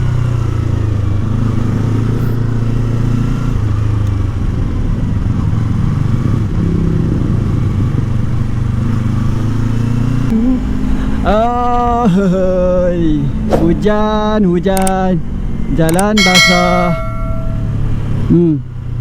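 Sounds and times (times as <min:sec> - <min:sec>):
motorcycle engine running: 0:00.0 - 0:12.8, 0:15.2 - 0:18.3
road noise: 0:00.0 - 0:19.0.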